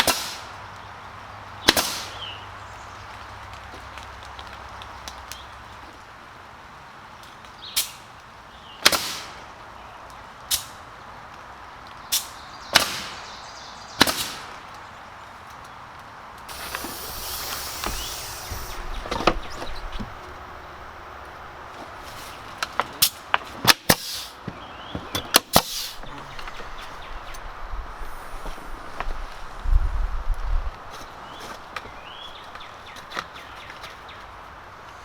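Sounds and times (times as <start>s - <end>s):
hiss: 0.0s - 0.6s, 1.7s - 2.3s, 16.5s - 23.2s, 23.9s - 24.4s, 25.5s - 31.4s, 34.8s - 35.0s
nails being driven: 16.5s - 24.2s, 25.0s - 27.4s.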